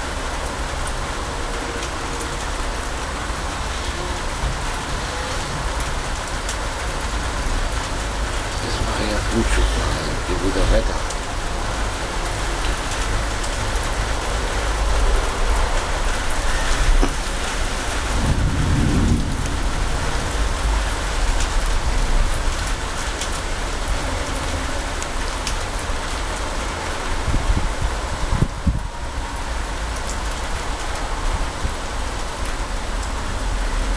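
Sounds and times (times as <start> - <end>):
heavy rain hiss: 0.0 - 33.9
thunder rumbling: 13.2 - 23.2.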